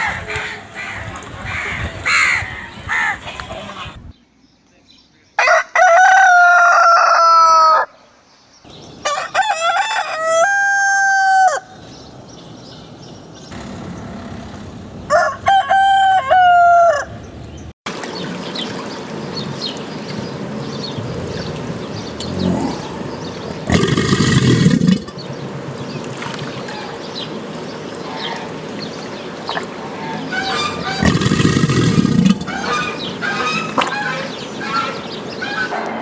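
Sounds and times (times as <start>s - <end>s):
rooster crowing: 5.4s - 8.0s, 9.0s - 11.8s, 15.1s - 17.2s.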